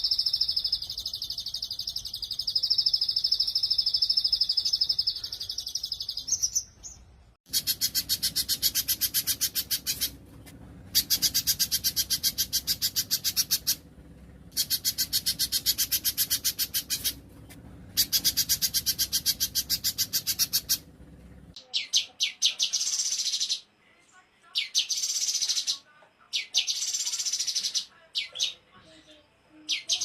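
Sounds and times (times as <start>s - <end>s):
buzzy bird trill: 0.0s - 13.9s, 14.5s - 20.9s
songbirds trilling: 0.0s - 23.7s.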